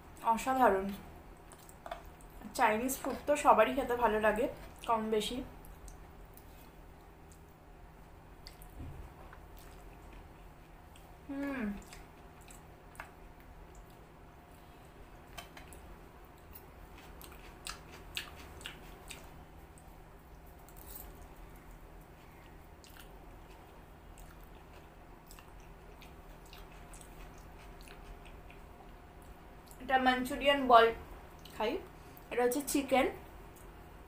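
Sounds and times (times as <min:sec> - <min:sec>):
close chewing of noodles: 0:08.4 - 0:14.1, 0:15.3 - 0:29.8.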